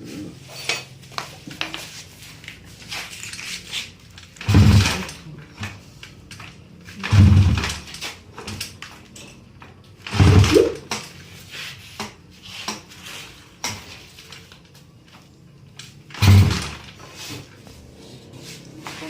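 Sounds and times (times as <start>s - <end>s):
mechanical clatter: 3.1s - 11.2s, 15.8s - 17.1s.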